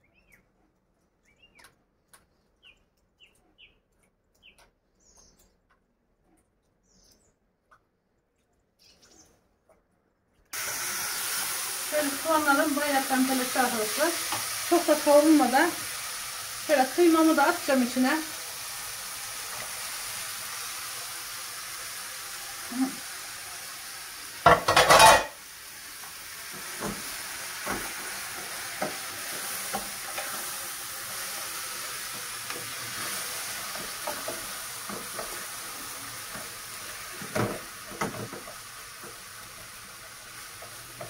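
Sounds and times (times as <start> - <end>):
onions and meat sizzling: 10.5 - 41.0.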